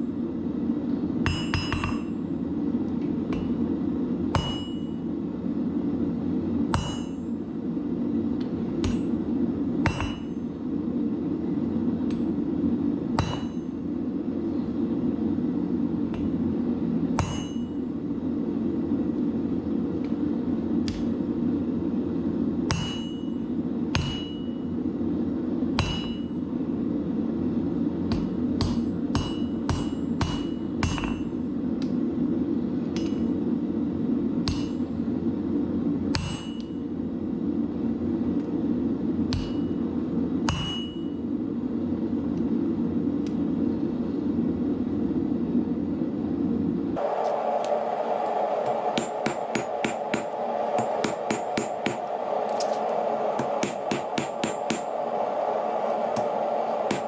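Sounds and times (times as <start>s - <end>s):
hammer striking steel on anvil: 1.2s - 2.1s, 4.3s - 5.0s, 6.7s - 7.3s, 8.8s - 9.2s, 9.8s - 10.4s, 13.2s - 13.7s, 17.2s - 17.8s, 22.7s - 23.4s, 24.0s - 24.6s, 25.8s - 26.4s, 28.1s - 31.3s, 34.4s - 34.8s, 36.1s - 36.7s, 39.3s - 39.8s, 40.5s - 41.1s, 49.0s - 52.1s, 53.4s - 54.9s
low rushing noise: 46.9s - 57.0s.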